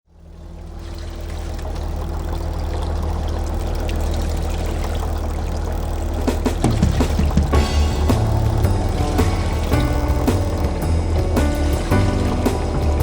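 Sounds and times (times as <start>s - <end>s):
boat engine running: 0.1s - 13.0s
water rushing past hull: 0.1s - 13.0s
knocks: 6.2s - 13.0s.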